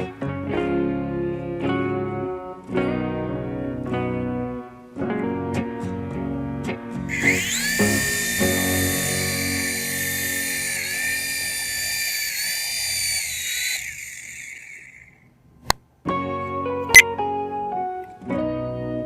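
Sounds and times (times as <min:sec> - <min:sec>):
toy helicopter motor whine: 0:07.1 - 0:15.2.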